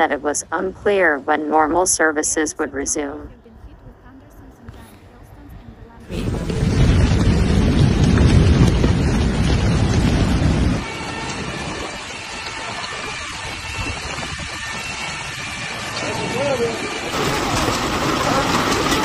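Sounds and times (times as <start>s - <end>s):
loud low rumbling: 6.0s - 19.0s
rain hiss: 6.1s - 19.0s.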